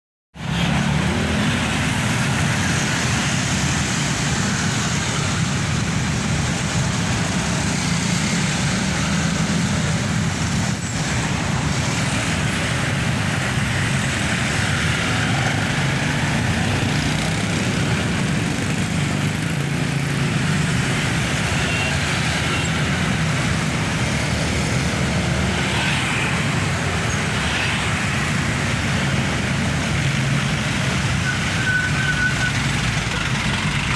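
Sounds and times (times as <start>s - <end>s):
surrounding traffic noise: 0.3s - 33.9s
truck diesel engine running: 32.6s - 33.9s.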